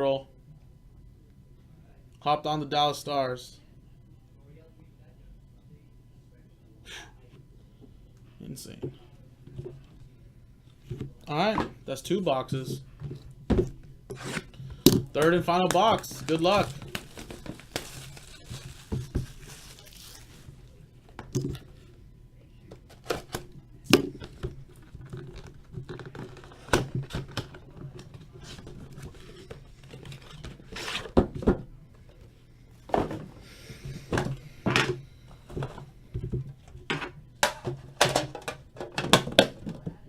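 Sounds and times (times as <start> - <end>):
card packaging being handled: 14.1 - 21.8, 22.8 - 23.5, 24.2 - 31.3.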